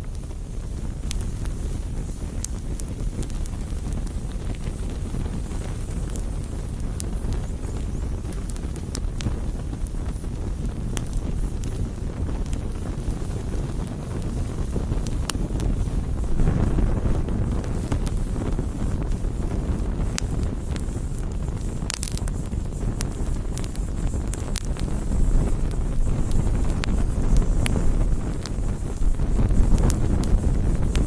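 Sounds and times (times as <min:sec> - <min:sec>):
campfire crackles and pops: 0:00.0 - 0:31.0
low steady rumble: 0:09.0 - 0:31.0.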